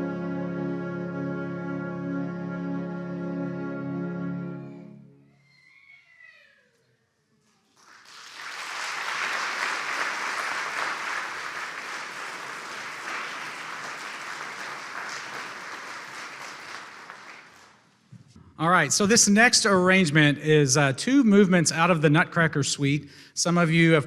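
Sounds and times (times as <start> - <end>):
audience applauding: 7.8 - 17.9.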